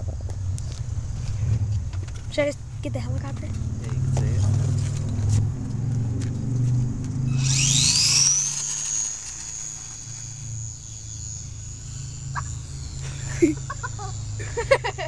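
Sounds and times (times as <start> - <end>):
rc plane motor whining: 7.0 - 15.0.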